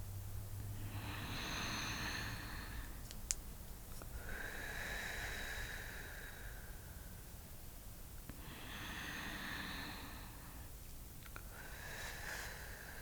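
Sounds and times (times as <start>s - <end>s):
soft human breathing: 0.7s - 3.0s, 4.0s - 7.3s, 8.3s - 10.8s, 11.4s - 13.0s.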